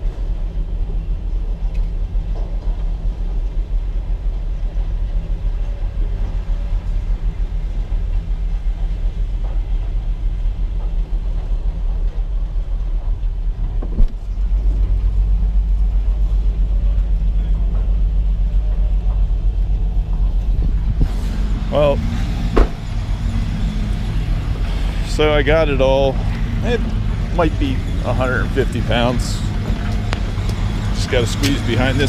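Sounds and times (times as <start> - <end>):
vehicle engine rumbling: 0.0 - 32.0
sharp knock: 22.5 - 22.8.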